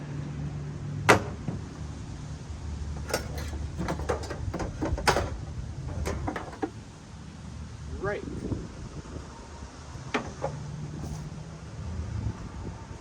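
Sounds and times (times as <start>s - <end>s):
low steady rumble: 0.0s - 13.0s
hand tools knocking and clattering: 3.0s - 6.8s.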